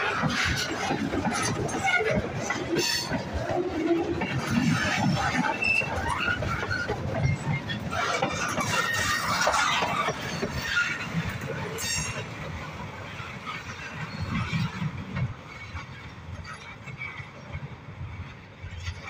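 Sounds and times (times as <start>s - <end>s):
train wheels clattering on rails: 0.0s - 19.0s
high wheel squeal: 4.4s - 11.1s.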